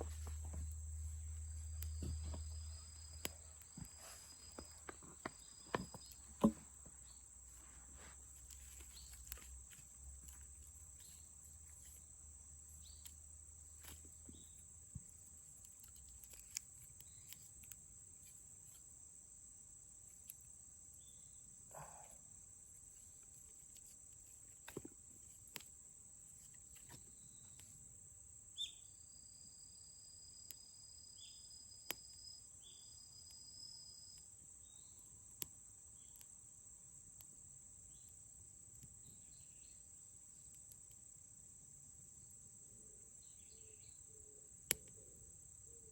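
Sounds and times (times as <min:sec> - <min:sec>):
campfire pops and clicks: 0:44.6 - 0:45.0.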